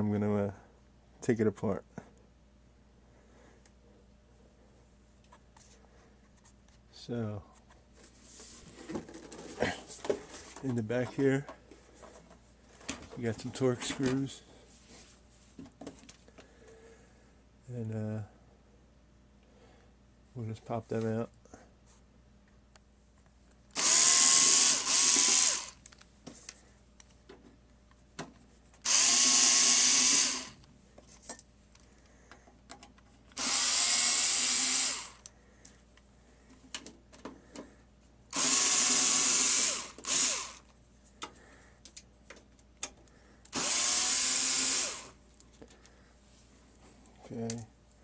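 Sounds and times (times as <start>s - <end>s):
power screwdriver spinning out screws: 23.7s - 25.8s, 28.8s - 30.6s, 33.4s - 35.2s, 38.3s - 40.7s, 43.5s - 45.2s.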